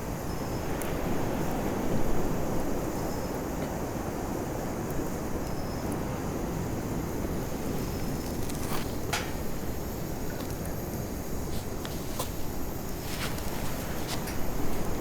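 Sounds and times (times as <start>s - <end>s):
fire crackles: 4.5s - 15.0s.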